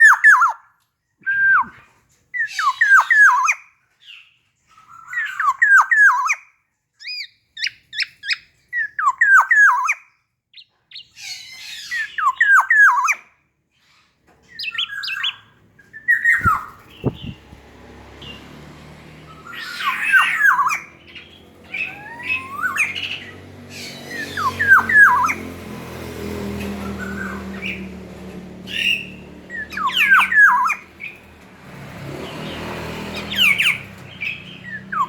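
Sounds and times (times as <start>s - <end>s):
bird calling in whistled notes: 19.3s - 25.4s.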